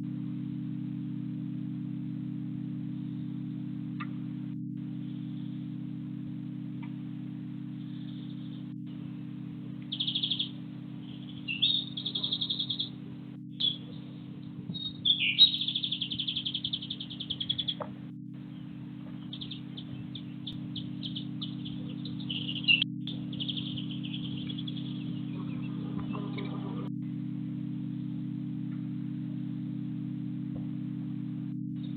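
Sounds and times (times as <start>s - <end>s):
low electrical hum: 0.0s - 31.9s
small birds chirping: 2.8s - 27.0s.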